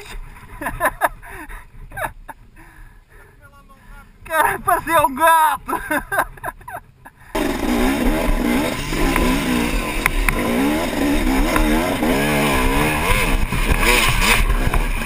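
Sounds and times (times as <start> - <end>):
dirt bike engine revving: 7.3 - 15.0.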